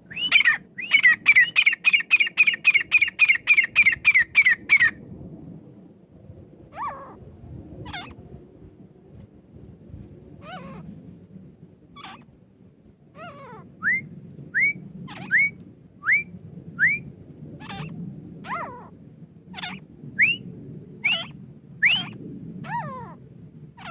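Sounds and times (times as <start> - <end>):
francolin whistled calls: 0.1 - 4.8, 13.8 - 17.9, 19.6 - 20.4, 21.0 - 22.2
low rumble: 4.7 - 23.8.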